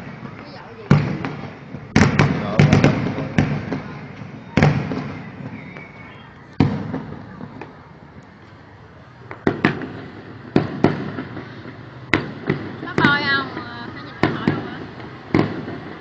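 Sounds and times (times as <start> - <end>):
fireworks bangs with echo: 0.0 - 16.0.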